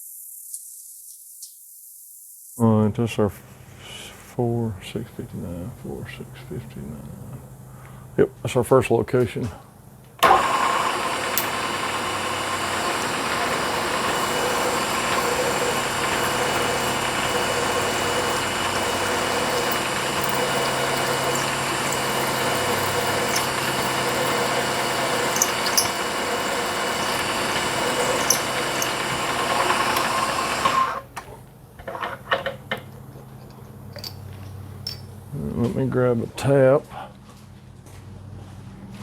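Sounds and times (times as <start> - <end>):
drill cutting through metal: 10.2 - 31.1
mill spindle whining: 10.2 - 31.3.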